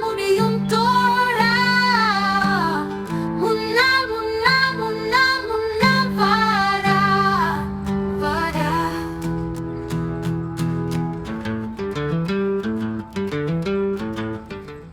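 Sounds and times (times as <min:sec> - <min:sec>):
woman singing: 0:00.0 - 0:10.1
guitar accompaniment: 0:00.0 - 0:14.9.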